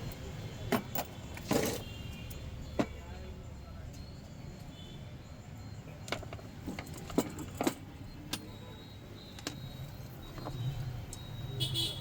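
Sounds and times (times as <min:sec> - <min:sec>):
metal clinks and taps: 0:06.0 - 0:08.6, 0:09.2 - 0:11.4.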